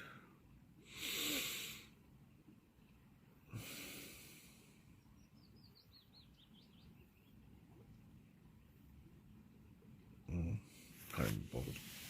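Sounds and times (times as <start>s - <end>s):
person breathing heavily: 0.0s - 2.0s, 3.5s - 4.9s.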